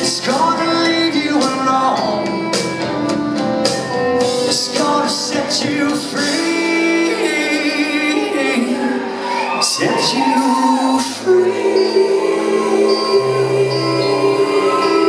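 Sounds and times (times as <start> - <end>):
country rock band with singing: 0.0 - 15.0.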